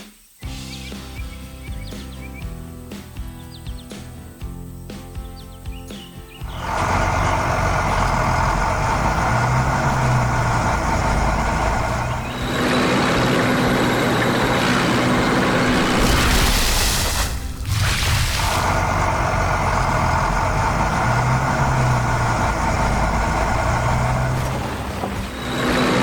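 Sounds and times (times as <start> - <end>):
heavy truck engine running: 6.3 - 26.0
loud hiss: 12.4 - 19.0.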